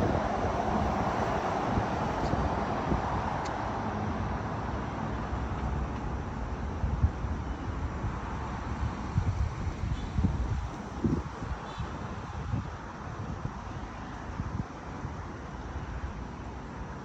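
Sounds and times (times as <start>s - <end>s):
wind buffeting microphone: 0.0s - 3.4s, 6.8s - 13.8s
road traffic passing: 0.0s - 17.0s.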